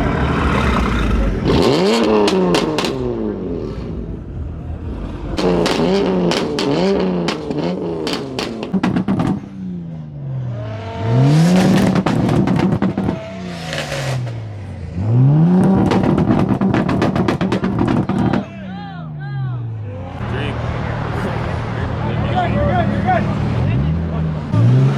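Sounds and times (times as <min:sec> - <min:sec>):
car engine revving: 0:00.0 - 0:18.6, 0:19.7 - 0:24.9
exhaust crackles and pops: 0:05.4 - 0:09.5, 0:11.5 - 0:14.4, 0:15.6 - 0:18.6.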